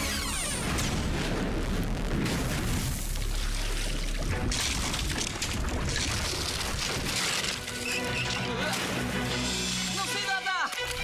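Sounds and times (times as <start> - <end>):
low rumbling booms: 0.6 - 7.2.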